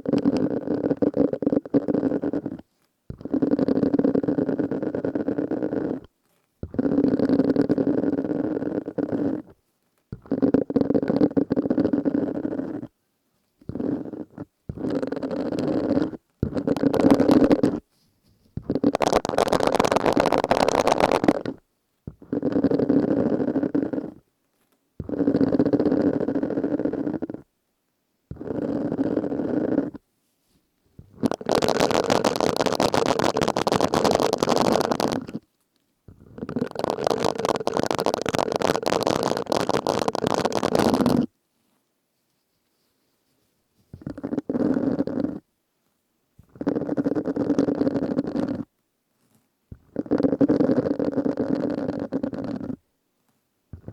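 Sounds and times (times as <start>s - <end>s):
silicone sponge squishing: 13.7s - 21.6s, 31.0s - 35.4s, 36.1s - 41.3s.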